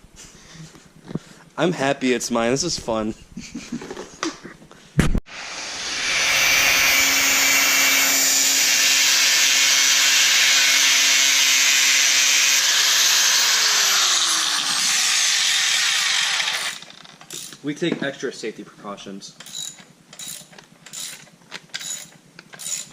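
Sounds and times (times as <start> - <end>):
rotary power tool whining: 5.3 - 17.6, 19.4 - 22.9.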